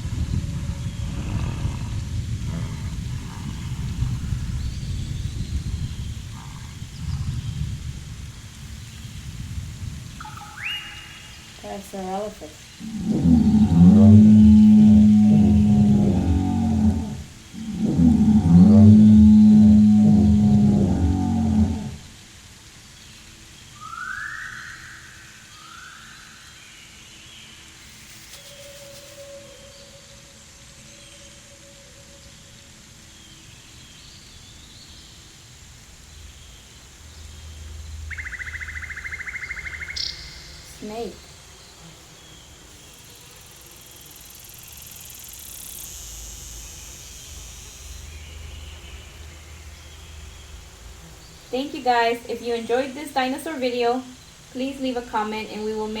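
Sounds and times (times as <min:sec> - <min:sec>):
low rumble: 0:00.0 - 0:10.7, 0:12.7 - 0:22.2
snake hissing: 0:00.0 - 0:22.6, 0:35.2 - 0:54.6
faint steady tone: 0:23.0 - 0:56.0
short rising whistle tones: 0:27.8 - 0:30.3.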